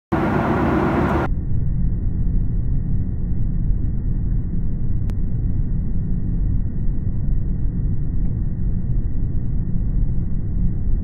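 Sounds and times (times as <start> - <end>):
airliner cabin engine rumble: 0.1 - 1.3.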